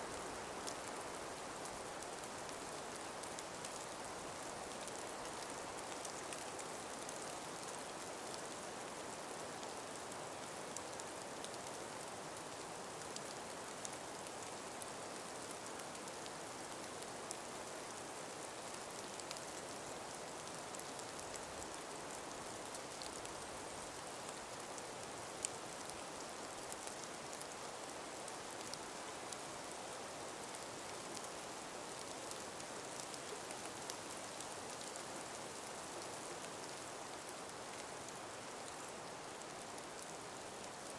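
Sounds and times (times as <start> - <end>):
gentle breeze hiss: 0.0 - 40.9
faint ticks: 17.3 - 19.7, 32.0 - 40.9.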